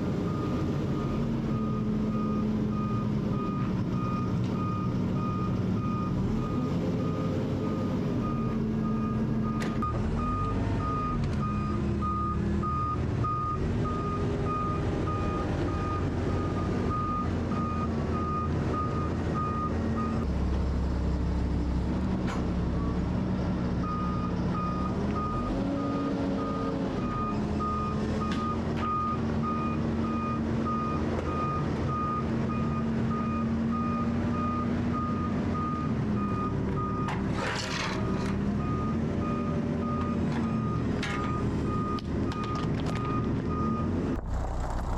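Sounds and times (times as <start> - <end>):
diesel engine: 0.0 - 44.9
reversing alarm beeping: 38.6 - 44.0.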